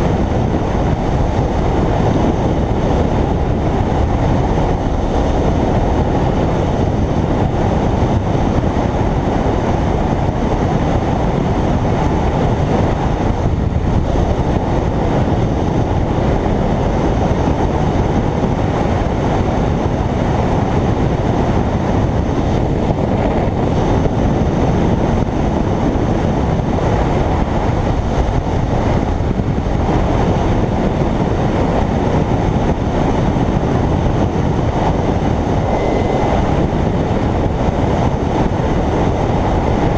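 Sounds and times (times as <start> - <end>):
wind and road noise: 0.0 - 39.9
motorcycle engine running: 26.4 - 39.9.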